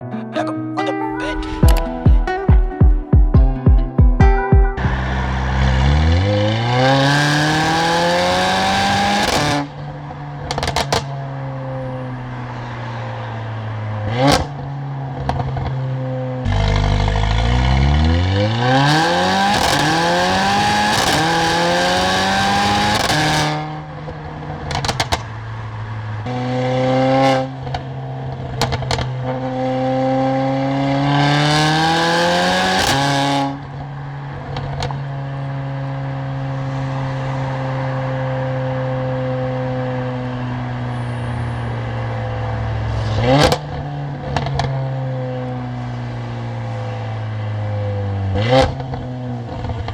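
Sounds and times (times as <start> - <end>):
car exhaust accelerating: 4.8 - 49.9
exhaust crackles and pops: 10.4 - 11.1, 24.2 - 25.4, 27.7 - 29.2.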